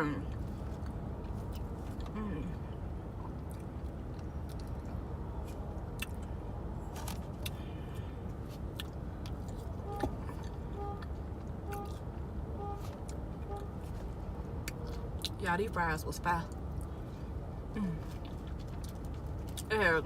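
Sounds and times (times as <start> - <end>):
car cabin rumble: 8.4 - 15.0.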